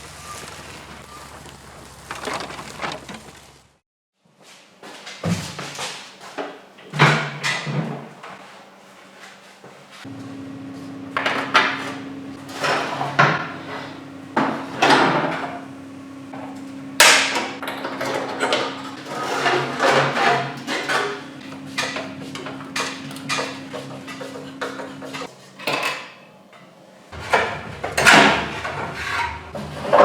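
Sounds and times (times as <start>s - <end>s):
tools knocking and clanking: 17.0s - 30.0s.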